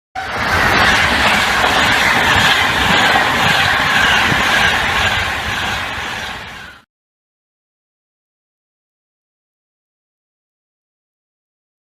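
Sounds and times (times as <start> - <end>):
train wheels on rails: 0.2 - 6.8.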